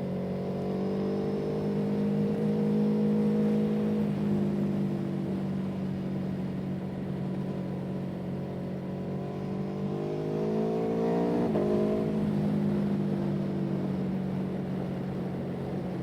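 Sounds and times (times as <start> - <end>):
vehicle engine revving: 9.4 - 12.3.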